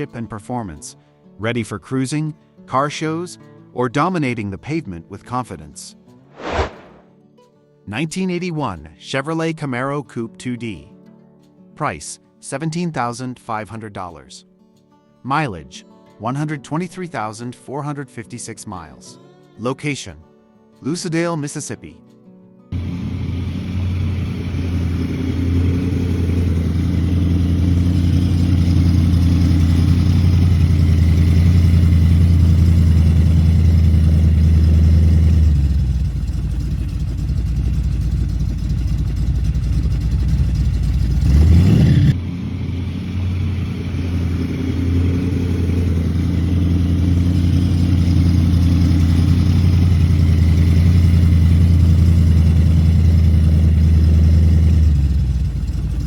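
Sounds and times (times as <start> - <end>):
car engine idling and revving: 22.8 - 56.0.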